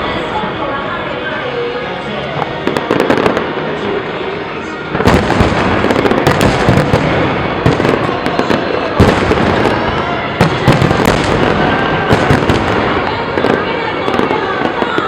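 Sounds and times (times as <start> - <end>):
firework crackling bursts: 2.5 - 4.2, 4.9 - 15.0
firework booms: 2.6 - 3.7, 4.9 - 15.0.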